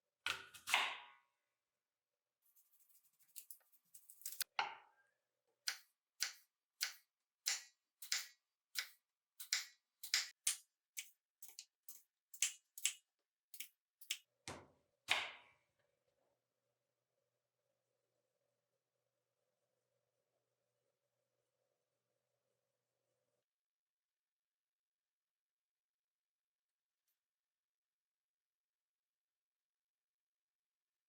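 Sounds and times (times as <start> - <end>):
knife cutting apple on board: 5.7 - 13.0.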